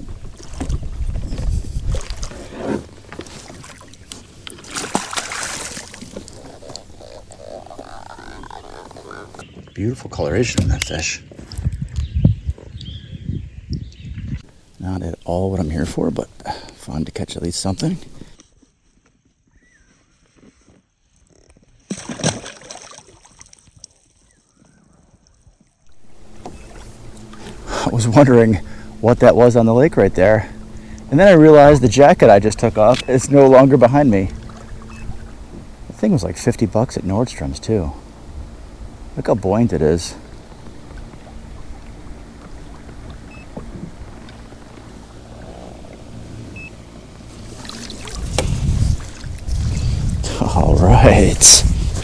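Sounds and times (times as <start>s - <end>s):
knocks and clicks in boat: 0.0s - 7.2s, 8.2s - 12.9s, 26.2s - 28.9s, 30.2s - 37.0s, 40.2s - 49.5s
water splashing and sloshing: 0.0s - 9.7s, 21.7s - 52.0s.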